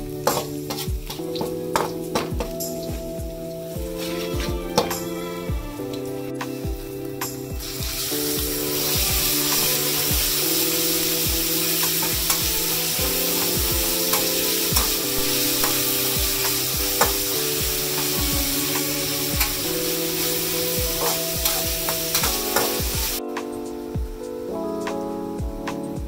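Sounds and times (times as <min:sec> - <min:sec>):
meat sizzling in hot oil: 0:07.6 - 0:23.2
metal spatula scraping wok: 0:17.9 - 0:22.8.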